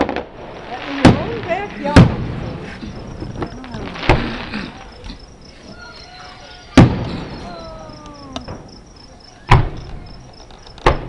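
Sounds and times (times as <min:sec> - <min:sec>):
crickets chirping: 0:00.0 - 0:11.0
distant fireworks booming: 0:00.0 - 0:11.0
small firework pop: 0:09.5 - 0:10.0.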